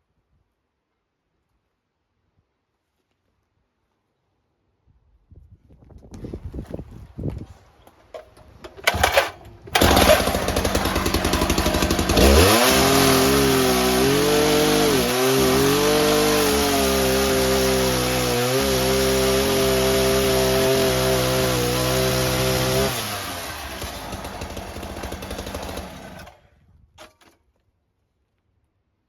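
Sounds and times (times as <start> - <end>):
cut-off saw cutting: 8.8 - 26.4.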